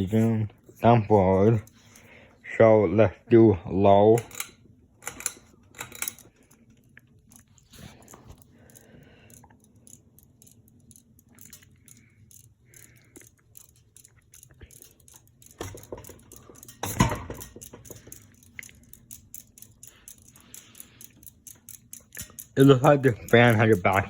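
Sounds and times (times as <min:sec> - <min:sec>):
ceiling fan motor hum: 0:00.0 - 0:24.0
rapid light ticking: 0:05.1 - 0:24.0.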